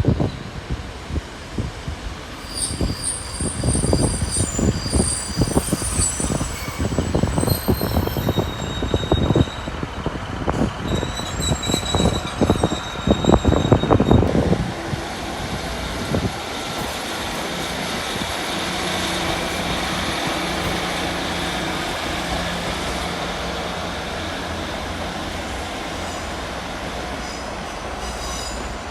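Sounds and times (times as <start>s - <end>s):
train wheels squealing: 2.3s - 14.5s, 27.2s - 28.9s.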